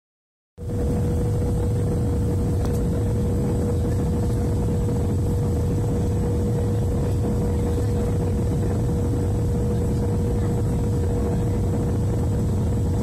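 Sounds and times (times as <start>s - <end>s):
engines and airflow rushing: 0.6s - 13.0s
steady hum: 0.6s - 13.0s.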